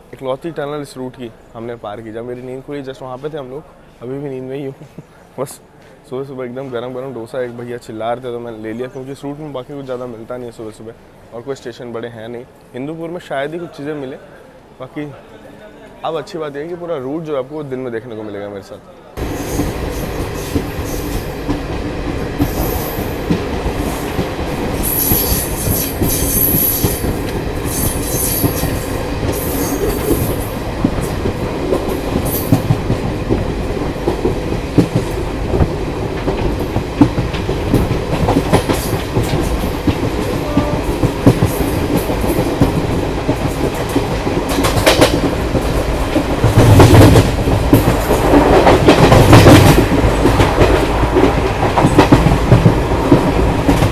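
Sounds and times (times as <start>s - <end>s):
train rumble: 19.2s - 53.9s
train wheels clicking over rail joints: 19.2s - 53.9s
high wheel squeals: 24.8s - 27.1s, 27.7s - 30.3s.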